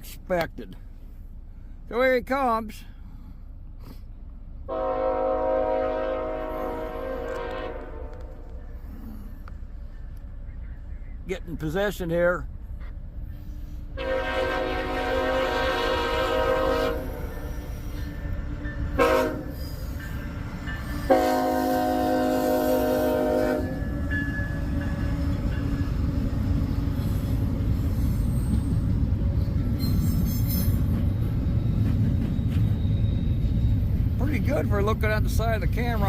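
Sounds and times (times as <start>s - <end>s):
train rumbling past: 2.7s - 36.0s
locomotive air horn blasts: 4.7s - 8.6s, 13.9s - 19.8s, 21.0s - 23.9s.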